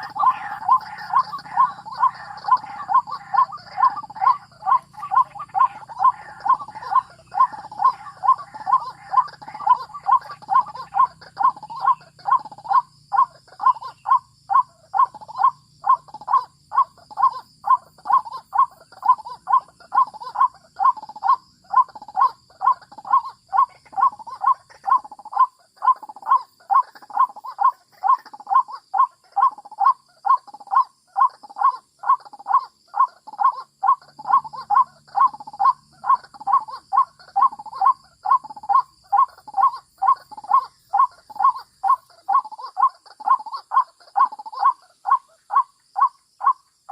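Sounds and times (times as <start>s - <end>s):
waterhen harsh call: 0.0s - 30.0s.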